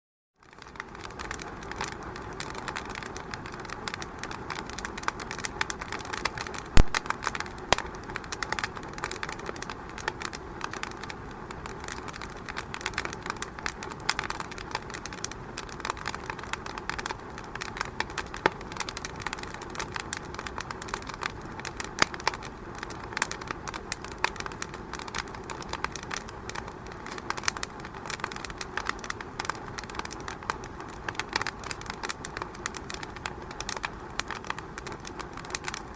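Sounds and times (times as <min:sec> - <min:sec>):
wood fire crackling: 0:00.4 - 0:35.9
loud fire pop: 0:06.8 - 0:07.9.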